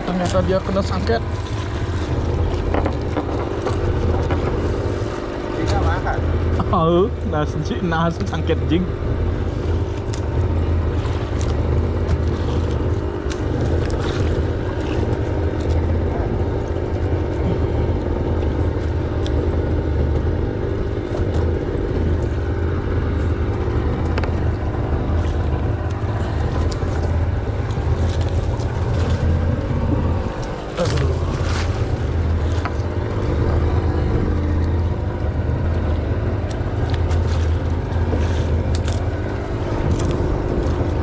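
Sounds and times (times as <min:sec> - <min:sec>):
engine humming: 0:00.0 - 0:41.0.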